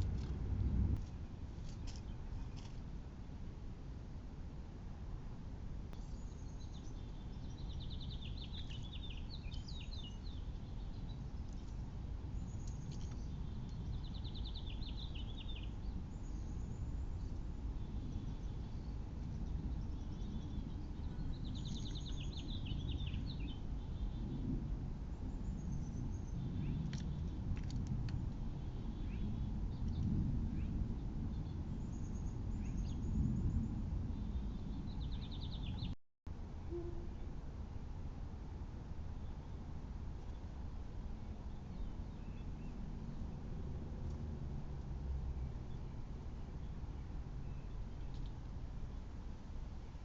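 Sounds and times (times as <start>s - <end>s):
low background rumble: 0.0s - 50.0s.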